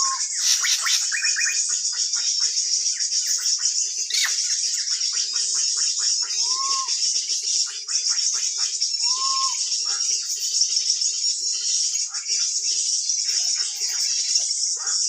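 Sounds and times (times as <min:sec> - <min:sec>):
bird whistle: 0:00.0 - 0:01.6, 0:04.1 - 0:04.4, 0:06.3 - 0:07.0, 0:09.0 - 0:09.7
birds chirping: 0:00.0 - 0:15.0.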